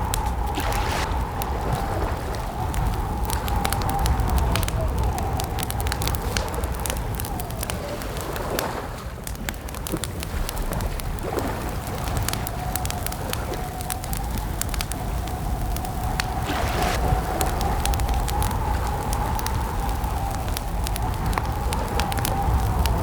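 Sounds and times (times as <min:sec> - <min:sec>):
low rumble: 0:00.0 - 0:08.0, 0:13.8 - 0:23.0
campfire crackling and popping: 0:00.0 - 0:23.0.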